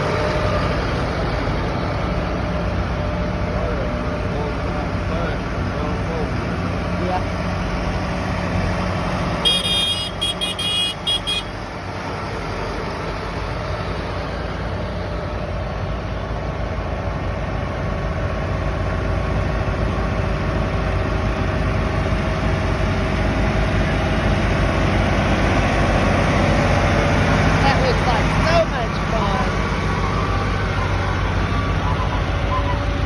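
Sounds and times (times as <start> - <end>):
tractor engines running: 0.0 - 33.0
horn short toots: 9.4 - 11.5.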